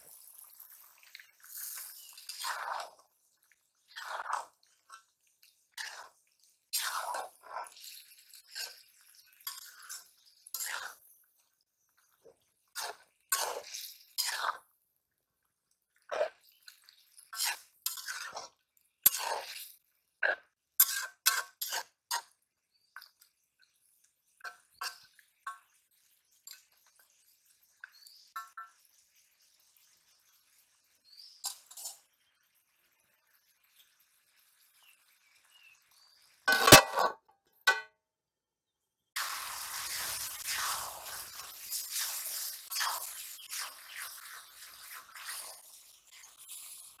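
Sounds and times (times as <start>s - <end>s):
metal spatula scraping a pan: 0.0s - 3.1s, 3.8s - 5.1s, 5.7s - 11.0s, 12.7s - 14.6s, 16.1s - 22.3s, 24.4s - 27.3s, 31.2s - 32.2s, 36.5s - 37.8s, 39.2s - 47.0s.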